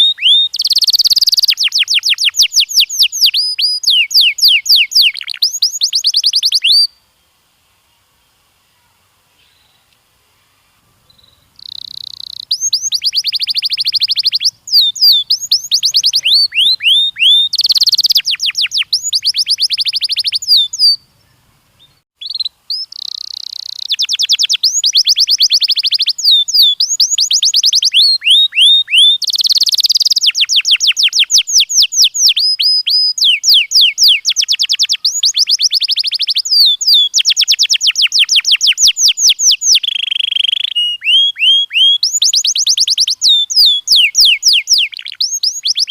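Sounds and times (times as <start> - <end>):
canary singing trills: 0.0 - 7.1, 10.6 - 45.9.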